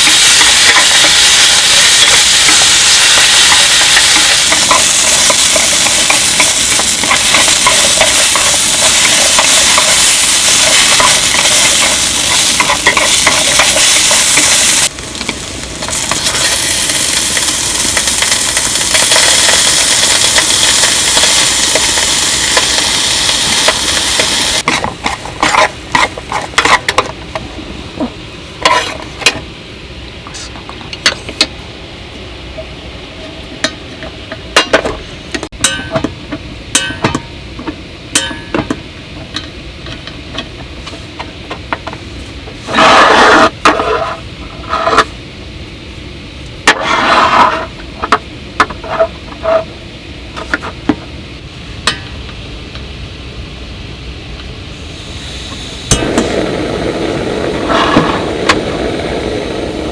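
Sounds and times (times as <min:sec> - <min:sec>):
loud hiss: 0:00.0 - 0:24.7, 0:54.6 - 0:59.9
rushing noises: 0:55.4 - 0:59.9.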